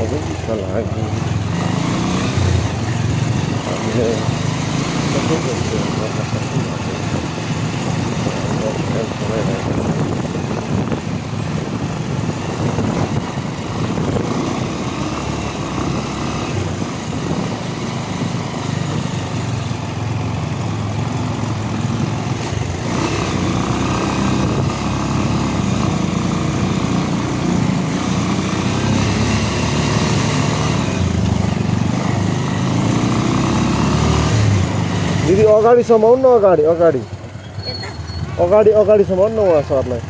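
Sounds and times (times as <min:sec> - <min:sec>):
motorcycle engine running: 0:00.0 - 0:40.0
road and wind noise: 0:00.0 - 0:40.0.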